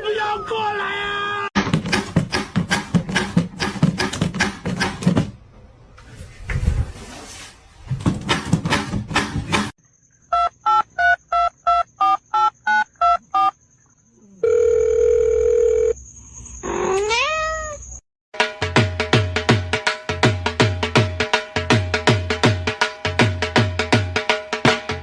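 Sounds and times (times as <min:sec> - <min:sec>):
short electronic beeps: 0:10.3 - 0:13.6
cat meowing: 0:16.9 - 0:17.9
music with steady beat: 0:18.4 - 0:25.0.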